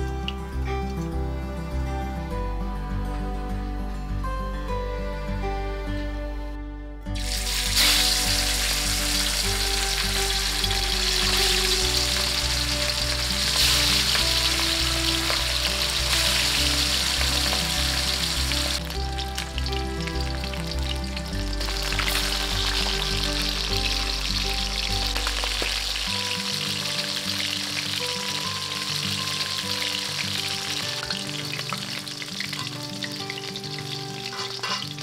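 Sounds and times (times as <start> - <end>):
background music: 0.0 - 35.0
fish sizzling in hot oil: 7.2 - 35.0.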